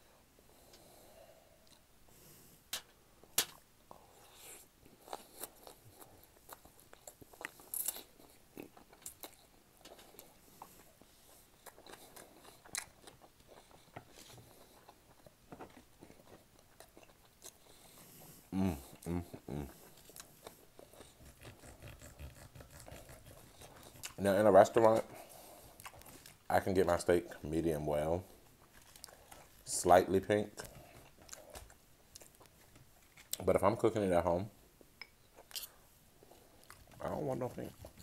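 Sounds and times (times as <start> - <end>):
person chewing crunchy food: 4.1 - 26.5, 28.3 - 29.7, 30.5 - 33.4, 35.3 - 38.0.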